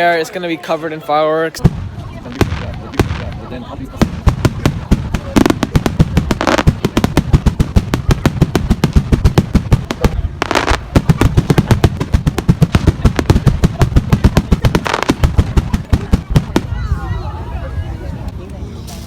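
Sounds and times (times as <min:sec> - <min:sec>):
fireworks bangs and crackles: 0:01.5 - 0:17.0.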